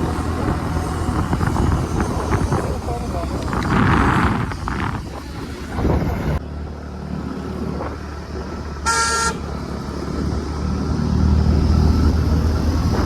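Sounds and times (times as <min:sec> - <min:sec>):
road noise: 0:00.0 - 0:13.0
vehicle engine rumble: 0:00.0 - 0:13.0
vehicle horn beep: 0:08.8 - 0:09.5.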